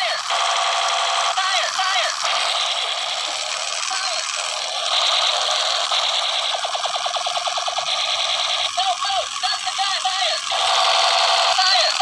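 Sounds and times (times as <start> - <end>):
fast rattle of electronic pulses: 0.2 - 12.0.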